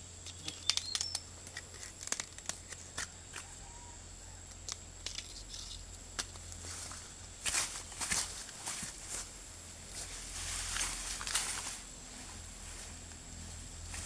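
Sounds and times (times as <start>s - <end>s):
sharp clicks and crackling: 0.2s - 3.5s.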